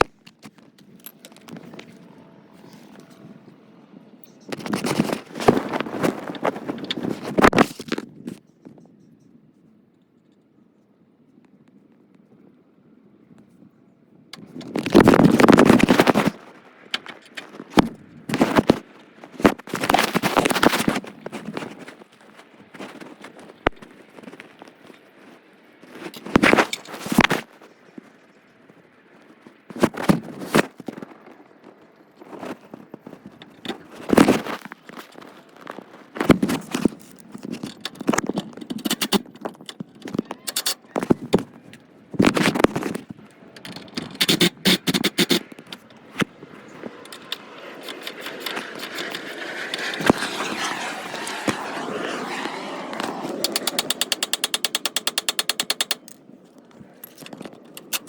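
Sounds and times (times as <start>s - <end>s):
fast run of clicks: 14.4s - 21.9s, 32.5s - 58.0s
tools scraping and clanking metal: 43.5s - 58.0s.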